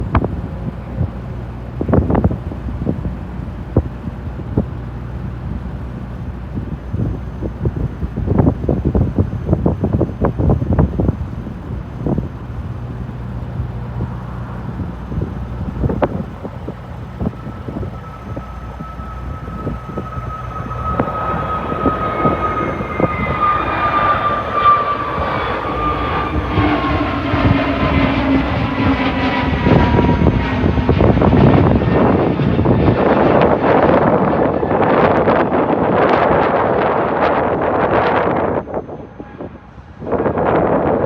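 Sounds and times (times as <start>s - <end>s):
high jet fan whine: 0.0s - 41.0s
jet engine low rumble: 0.0s - 41.0s
wind buffeting microphone: 0.0s - 41.0s.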